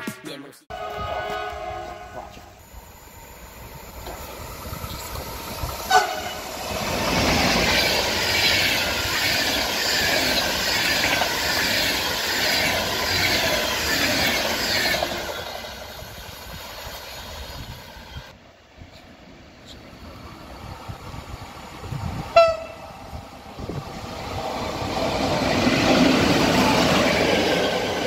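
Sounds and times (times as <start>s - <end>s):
train horn blast: 0.7s - 2.5s, 5.9s - 6.4s, 22.4s - 23.0s
train coaches rushing past: 0.7s - 18.3s, 18.9s - 28.0s.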